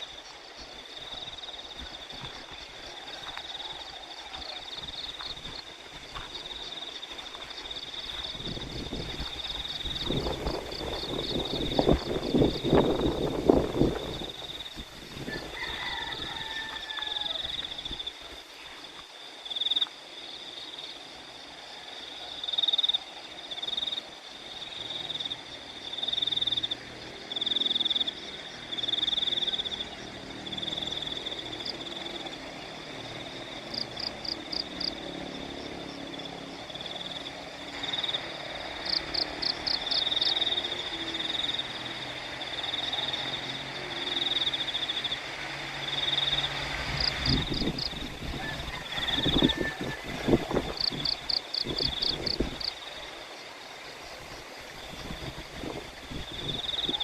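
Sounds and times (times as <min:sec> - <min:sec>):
frogs and insects chorus: 0:00.0 - 0:57.0.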